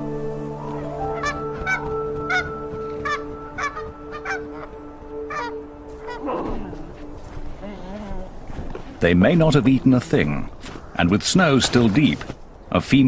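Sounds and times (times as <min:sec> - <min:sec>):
geese honking: 0:00.0 - 0:06.4
background music: 0:00.0 - 0:10.5.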